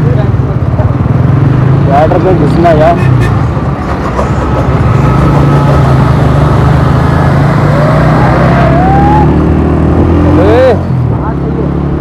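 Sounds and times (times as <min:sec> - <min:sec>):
road and wind noise: 0:00.0 - 0:12.0
motorcycle engine running: 0:03.4 - 0:12.0.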